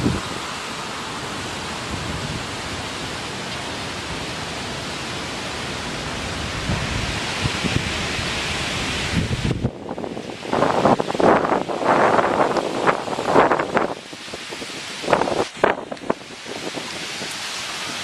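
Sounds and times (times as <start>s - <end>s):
strong wind rushing: 0.0s - 0.7s, 1.3s - 2.8s, 6.1s - 18.0s
wind buffeting microphone: 0.0s - 0.7s, 1.3s - 3.0s, 6.1s - 18.0s.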